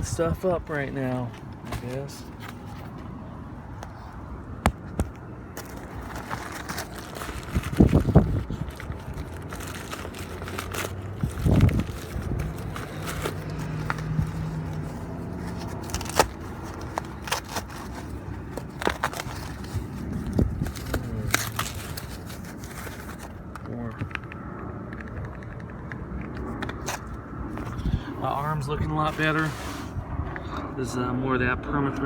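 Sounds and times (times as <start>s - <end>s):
packaging crinkling and tearing: 4.8s - 24.3s.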